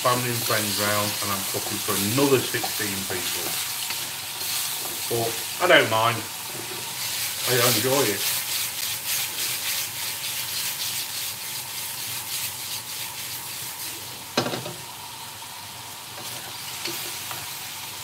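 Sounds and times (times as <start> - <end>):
meat sizzling in a wok: 0.0 - 18.0
wooden spatula scraping: 0.3 - 5.2, 6.4 - 14.1.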